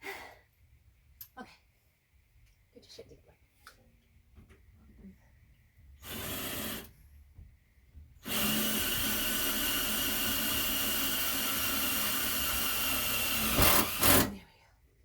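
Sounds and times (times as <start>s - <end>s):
power drill whining: 6.0s - 6.9s, 8.2s - 14.4s.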